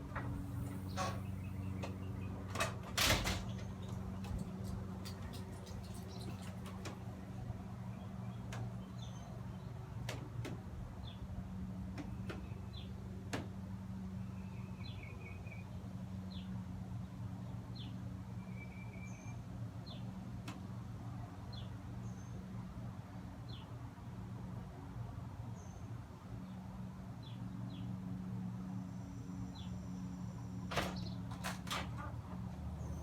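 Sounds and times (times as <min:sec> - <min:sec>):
steady low hum: 0:00.0 - 0:02.6.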